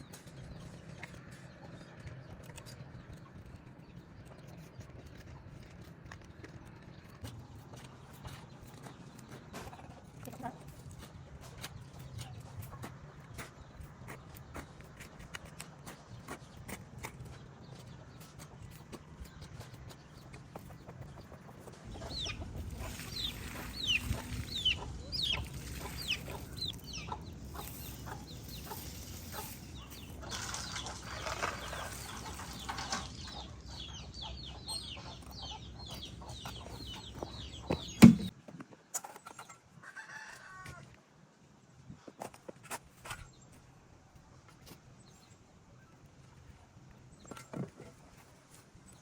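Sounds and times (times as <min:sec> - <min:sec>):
chickens clucking: 0:15.8 - 0:38.3
sharp knock: 0:38.0 - 0:38.3.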